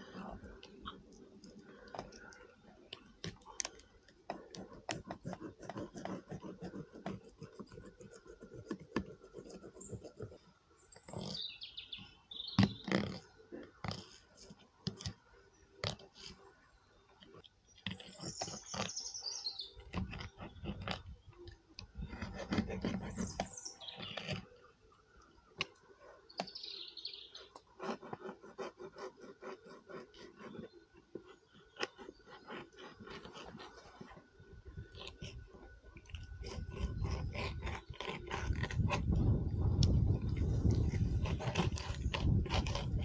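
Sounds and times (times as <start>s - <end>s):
clicking and scraping: 0.0s - 16.5s, 17.2s - 24.6s, 27.4s - 43.0s.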